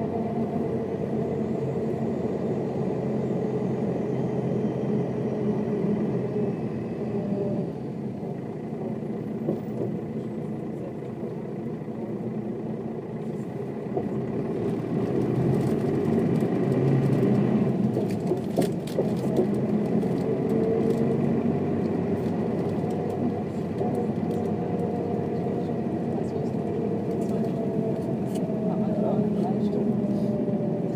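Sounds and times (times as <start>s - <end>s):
bus diesel engine running: 0.0s - 30.9s.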